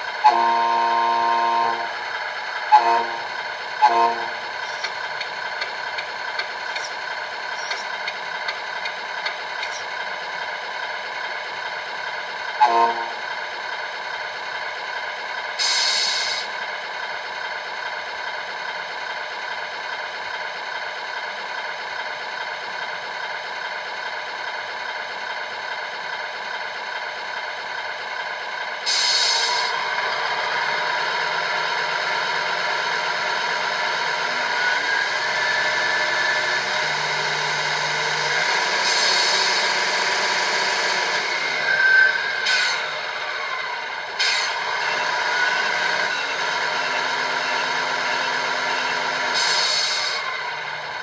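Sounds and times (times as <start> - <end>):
simulated diesel idle from speaker: 0.0 - 41.7, 42.4 - 51.0
brief hiss: 15.6 - 16.4.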